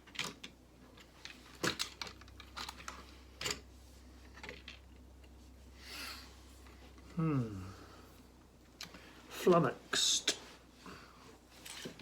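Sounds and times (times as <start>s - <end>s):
plastic pieces clicking together: 0.0s - 3.6s.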